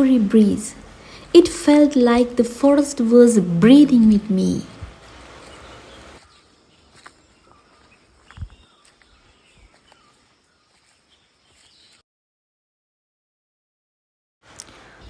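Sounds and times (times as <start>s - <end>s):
forest ambience: 0.0s - 12.0s, 14.5s - 15.0s
soft bird calls: 3.8s - 12.0s.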